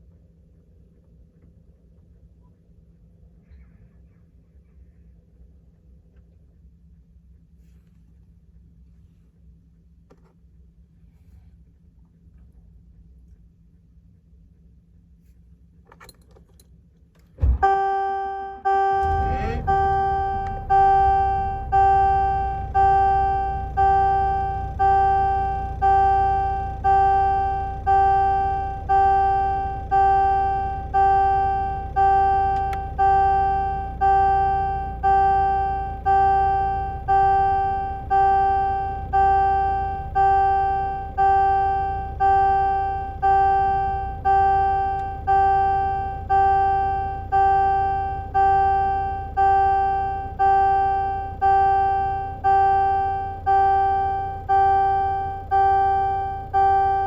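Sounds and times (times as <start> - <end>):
electronic warning chime: 17.6 - 57.0
truck engine idling: 18.7 - 57.0.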